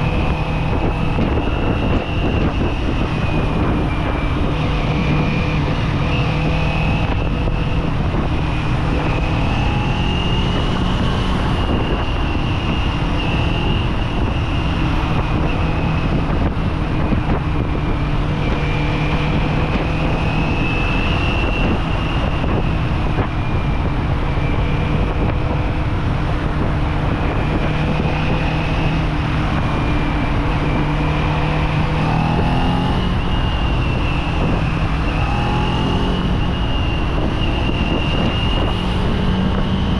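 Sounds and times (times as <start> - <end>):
motorcycle engine cruising: 0.0 - 39.9
wind noise: 0.0 - 39.9.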